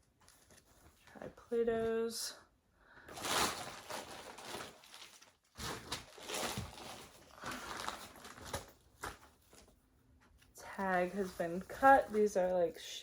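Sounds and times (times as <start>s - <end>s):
clothing fabric rustling: 3.1s - 9.7s, 10.6s - 13.0s.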